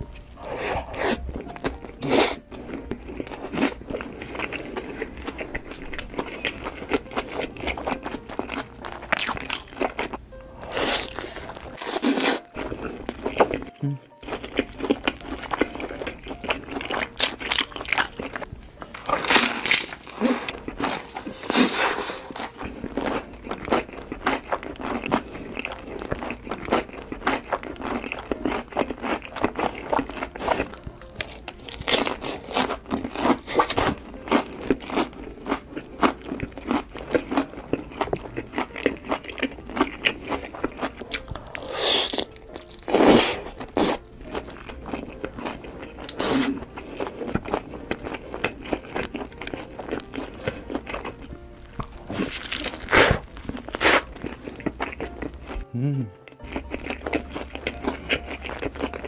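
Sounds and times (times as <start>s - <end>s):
crunching fried chicken: 0.0s - 55.6s, 56.4s - 59.0s
mouth sounds: 13.7s - 14.2s, 55.6s - 56.5s.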